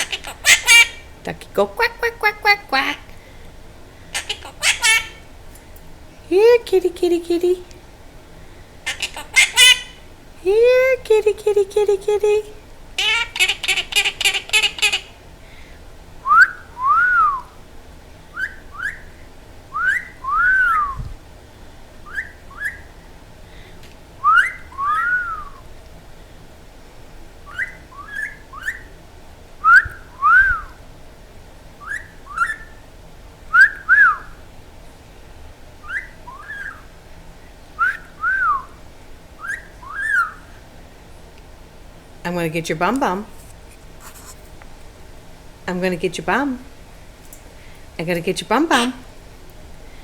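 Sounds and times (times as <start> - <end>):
parrot harsh chirps: 0.0 - 1.2, 1.8 - 3.1, 4.1 - 5.3, 8.8 - 10.1, 12.4 - 15.2, 22.0 - 23.0, 24.2 - 25.6, 27.5 - 29.0, 31.8 - 32.8, 35.8 - 36.9, 39.4 - 40.6
parrot whistling phrase: 19.8 - 21.0, 22.1 - 22.9, 24.2 - 25.6, 27.5 - 28.9, 29.6 - 30.8, 35.8 - 36.8, 39.4 - 40.5.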